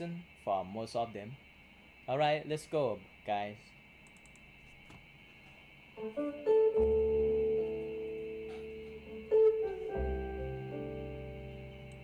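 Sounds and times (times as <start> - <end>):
plucked notes: 6.0 - 12.0
deep bass notes: 6.8 - 12.0.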